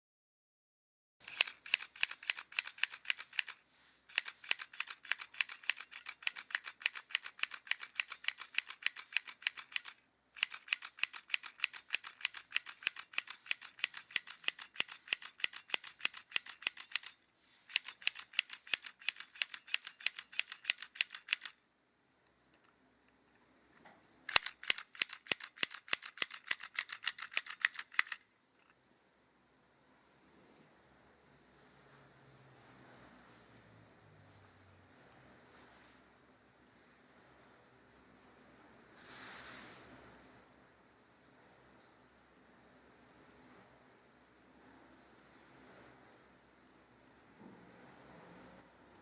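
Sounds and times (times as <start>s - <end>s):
mini sewing machine stitching: 1.2s - 21.6s, 24.3s - 28.2s.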